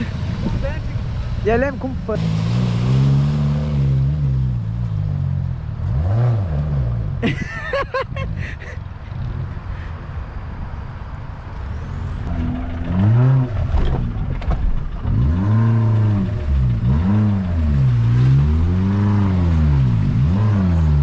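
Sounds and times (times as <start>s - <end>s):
engine revving: 0.0s - 7.2s, 12.1s - 21.0s.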